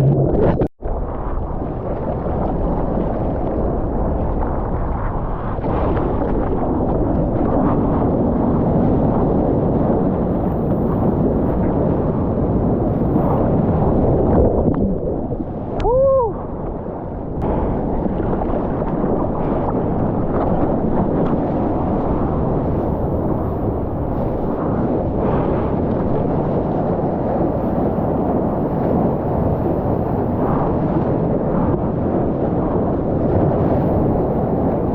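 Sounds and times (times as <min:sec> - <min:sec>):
ocean water rushing: 0:00.0 - 0:00.7
wind buffeting microphone: 0:00.0 - 0:34.9.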